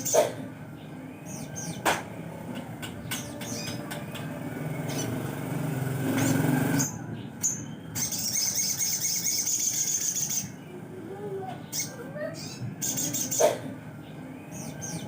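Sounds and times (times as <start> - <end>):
songbird buzzy trill: 3.1 - 10.6.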